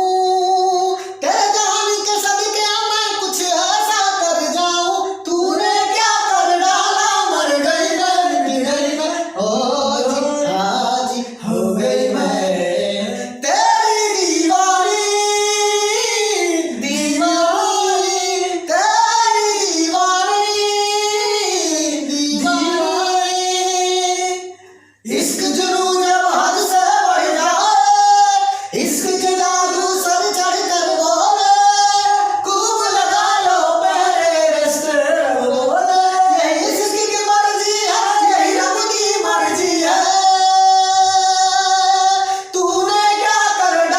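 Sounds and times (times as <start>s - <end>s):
woman singing with vibrato: 22.1s - 24.4s.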